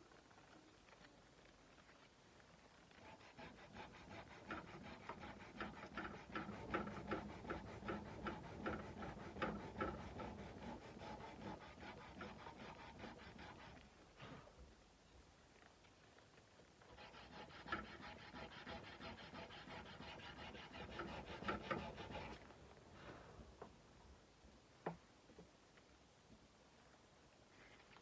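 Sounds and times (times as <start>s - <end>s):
sandpaper rubbing steel blade: 3.1s - 13.8s, 17.1s - 22.4s.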